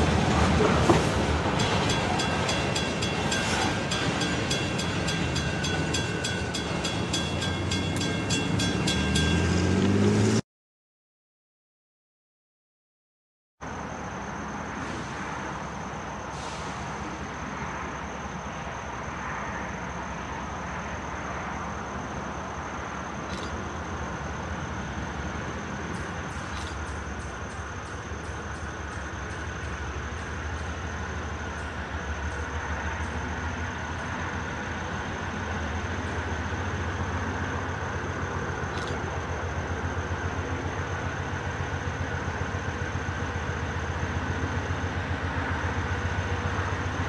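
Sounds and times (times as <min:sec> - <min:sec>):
diesel locomotive engine hum: 0:00.0 - 0:10.4, 0:13.6 - 0:47.0.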